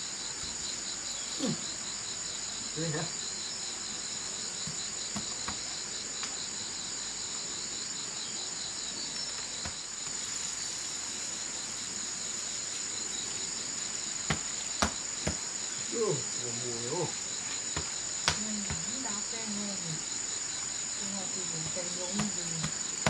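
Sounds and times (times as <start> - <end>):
high insect trill: 0.0 - 23.0
low pulsing insect trill: 0.0 - 23.0
sharp knocks: 14.3 - 15.4, 17.8 - 18.9.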